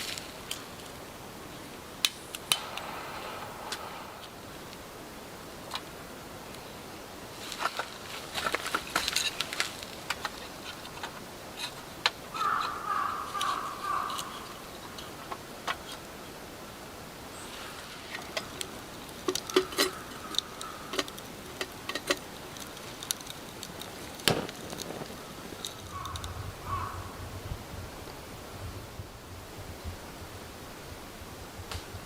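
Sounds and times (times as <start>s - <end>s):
light rain falling: 0.0s - 32.0s
crow cawing: 12.3s - 14.7s, 19.4s - 21.1s, 25.8s - 27.2s.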